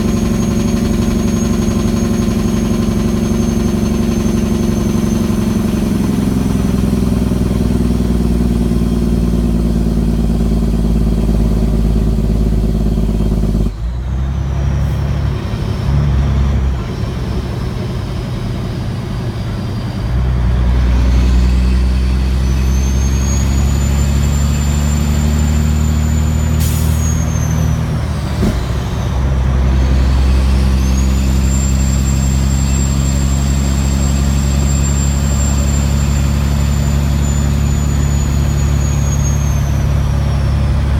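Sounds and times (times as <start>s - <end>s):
turbo whistle: 0.0s - 6.5s, 21.0s - 40.7s
diesel truck engine pulling: 0.0s - 40.9s.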